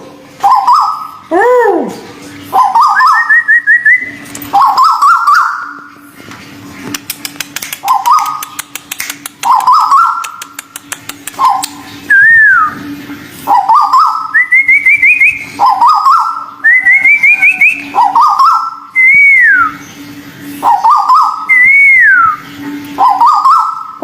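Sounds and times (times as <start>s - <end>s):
bird whistling calls: 0.4s - 1.2s, 2.5s - 5.9s, 7.8s - 8.8s, 9.4s - 10.6s, 11.4s - 12.9s, 13.5s - 20.0s, 20.6s - 24.0s.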